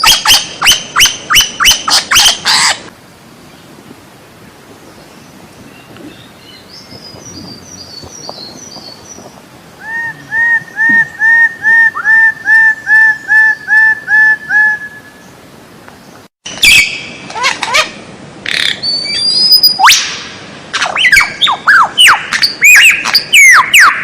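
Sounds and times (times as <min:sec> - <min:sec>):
faint high bird chirping: 0:04.9 - 0:12.1.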